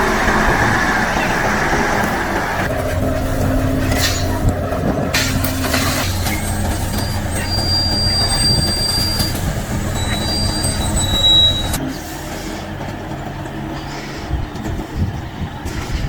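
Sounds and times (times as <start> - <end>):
thin metallic squeals: 0.0 - 12.8
heavy vehicle rumbling: 0.0 - 16.0.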